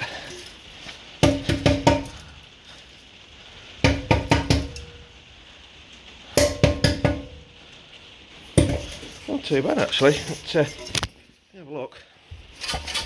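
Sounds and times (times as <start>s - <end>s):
hollow metallic clangs: 1.2s - 2.3s, 3.8s - 5.0s, 6.4s - 7.6s, 8.6s - 11.2s.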